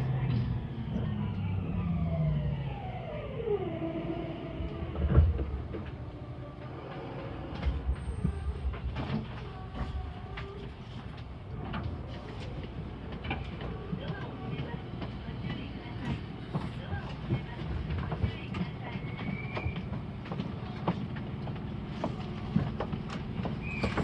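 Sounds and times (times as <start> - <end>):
train motors whining: 0.0 - 15.7
rail rumble: 0.0 - 24.0.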